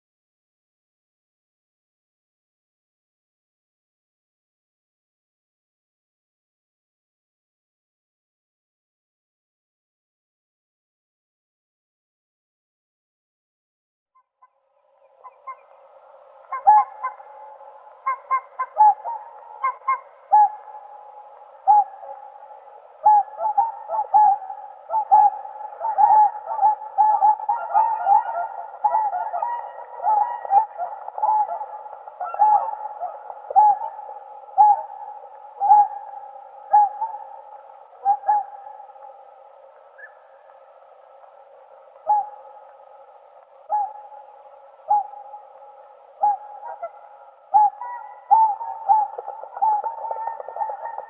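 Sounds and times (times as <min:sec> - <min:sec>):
faint steady background: 0:14.4 - 0:51.0
faint swan calling: 0:14.5 - 0:51.0
swans honking: 0:46.2 - 0:51.0.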